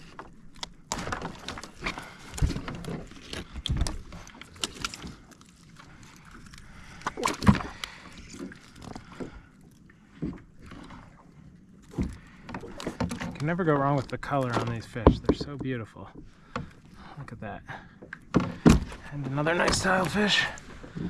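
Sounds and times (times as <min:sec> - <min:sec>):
knocks and thumps on a kayak: 0:11.9 - 0:16.8, 0:17.8 - 0:21.0.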